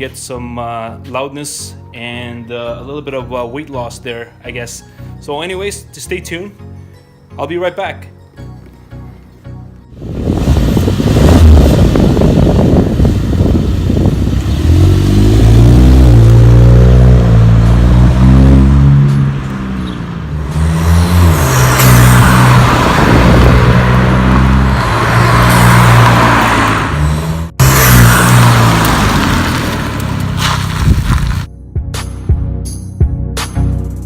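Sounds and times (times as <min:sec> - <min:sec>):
car engine revving: 0:10.0 - 0:31.5.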